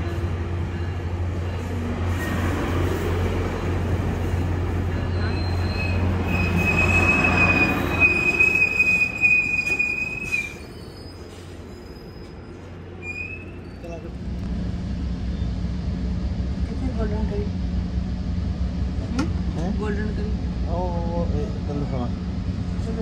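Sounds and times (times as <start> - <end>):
train coaches rolling past: 0.0 - 23.0
high wheel squeal: 4.9 - 14.1.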